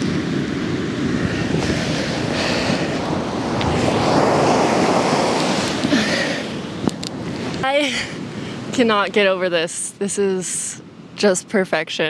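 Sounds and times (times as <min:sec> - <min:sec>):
wind buffeting microphone: 0:00.0 - 0:09.2
ocean surf on beach: 0:00.0 - 0:12.0.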